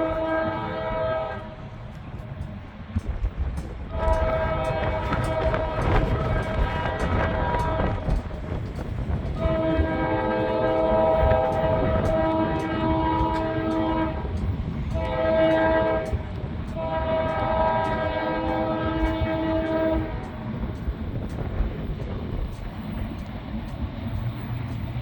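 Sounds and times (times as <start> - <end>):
locomotive air horn blasts: 0.0 - 1.6, 3.9 - 8.3, 9.3 - 20.4
train rumble: 0.0 - 25.0.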